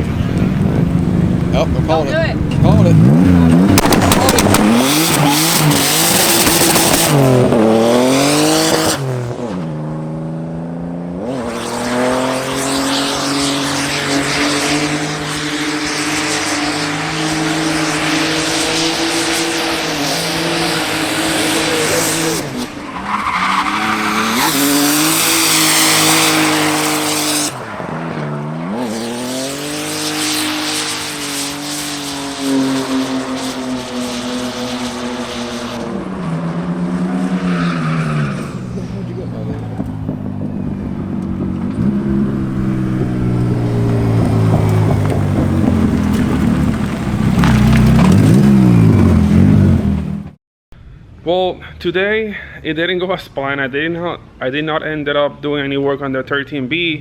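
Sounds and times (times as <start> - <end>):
car engine at high revs: 0.0 - 50.4
tyres squealing: 19.6 - 28.2.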